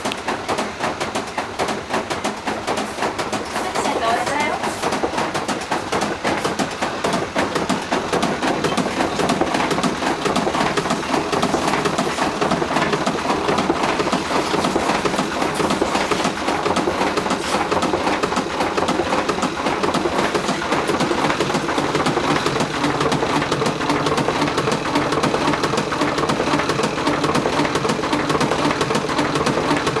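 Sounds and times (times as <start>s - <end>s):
washing machine rattling in spin: 0.0s - 30.0s.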